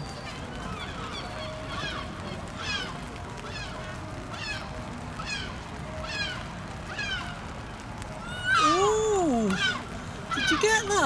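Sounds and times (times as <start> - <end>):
gull calling: 8.3 - 11.0.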